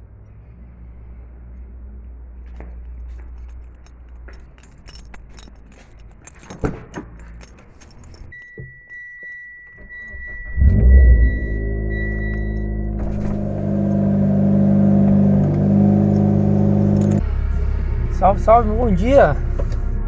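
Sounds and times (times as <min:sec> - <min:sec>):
car keys jangling: 0:03.1 - 0:17.2
car engine starting: 0:09.8 - 0:20.0
high electronic tone: 0:10.0 - 0:14.4
car engine idling: 0:10.1 - 0:20.0.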